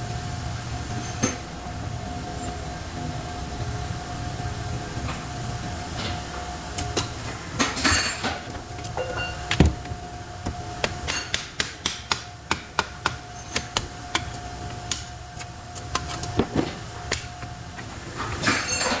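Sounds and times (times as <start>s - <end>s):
tools tapping on metal: 6.8s - 9.8s.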